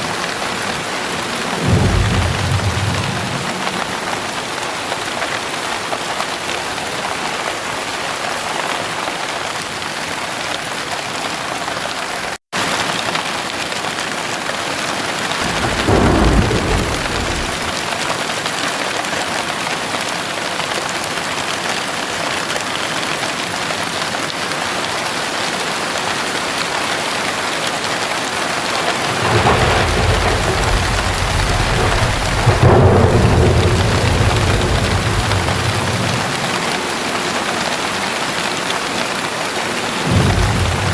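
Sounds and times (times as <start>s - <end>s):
heavy rain falling: 0.0s - 40.9s
thunder rumbling: 0.8s - 5.1s, 15.3s - 18.1s, 28.5s - 37.7s, 39.8s - 40.9s.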